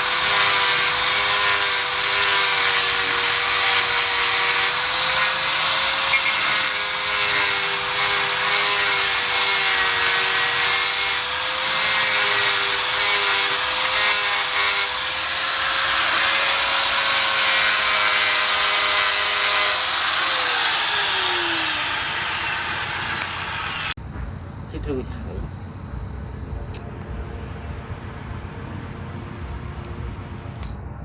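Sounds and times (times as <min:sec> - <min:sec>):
power tool motor running: 0:00.0 - 0:24.0.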